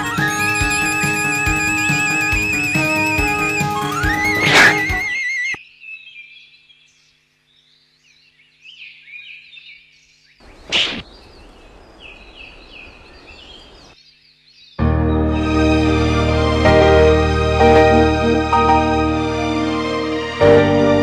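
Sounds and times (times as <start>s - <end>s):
small birds chirping: 0.0s - 14.8s.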